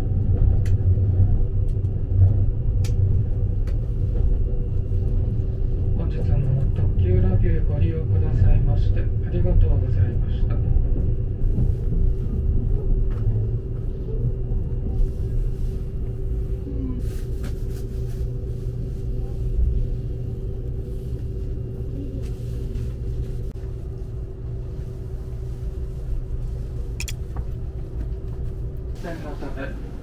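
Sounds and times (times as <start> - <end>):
constant hum: 0.0 - 30.0.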